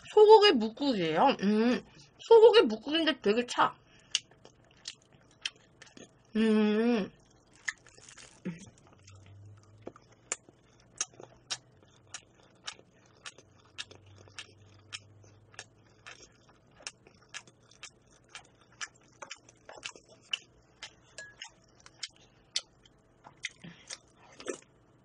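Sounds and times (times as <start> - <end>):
chewing with mouth closed: 4.1 - 6.3, 7.2 - 24.8.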